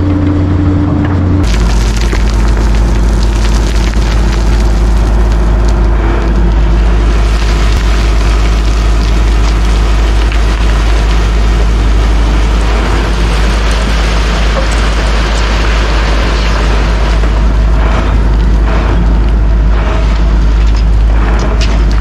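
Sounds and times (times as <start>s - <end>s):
diesel machinery rumbling: 0.0s - 22.0s
crackling and crunching: 1.4s - 22.0s.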